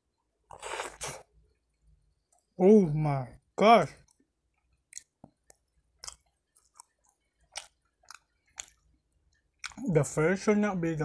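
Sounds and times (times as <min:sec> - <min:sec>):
person chewing wetly: 0:00.5 - 0:02.6, 0:04.0 - 0:09.9.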